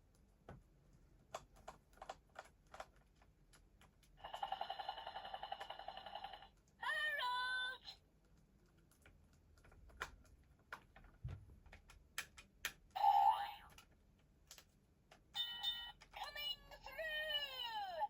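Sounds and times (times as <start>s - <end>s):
plastic toy train clicks and taps: 11.7s - 12.8s
toy electronic tones and jingles: 15.4s - 17.7s.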